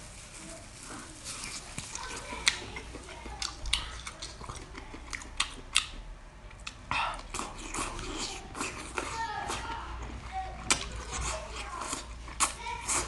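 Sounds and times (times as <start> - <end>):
chewing crunchy food: 0.0 - 13.0.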